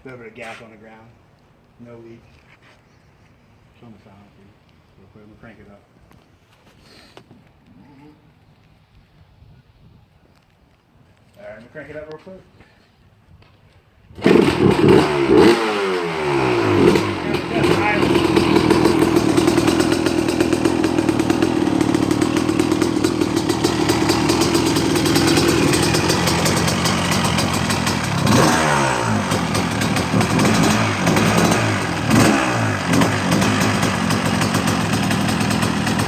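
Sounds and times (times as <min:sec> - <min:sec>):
motorcycle engine idling and revving: 0:14.2 - 0:36.0.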